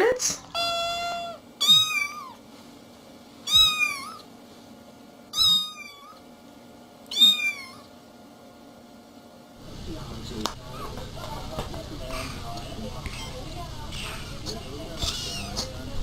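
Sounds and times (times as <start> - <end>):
cat meowing: 0.5 - 2.4, 3.4 - 4.3, 5.3 - 6.2, 7.1 - 7.9, 15.0 - 15.7.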